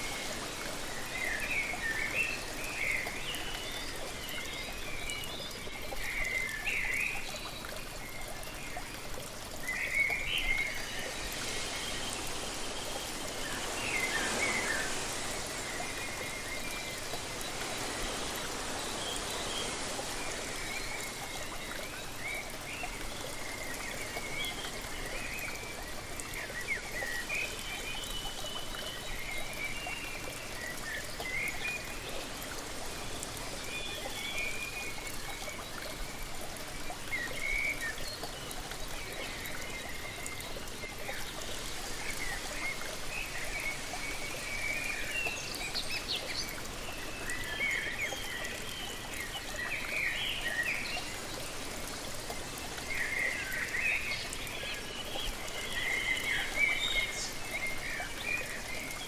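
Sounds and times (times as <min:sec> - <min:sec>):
waterfall rushing: 0:10.4 - 0:22.5.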